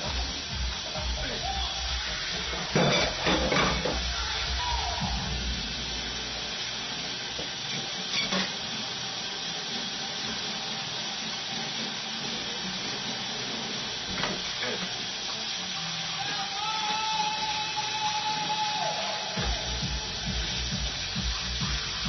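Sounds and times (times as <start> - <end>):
food sizzling in a frying pan: 0.0 - 22.0.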